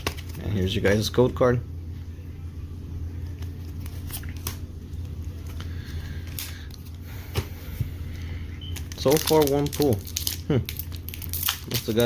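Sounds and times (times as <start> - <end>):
trading cards clicking and rustling: 0.0 - 1.1, 3.2 - 7.0, 8.2 - 12.0
steady low hum: 0.0 - 12.0.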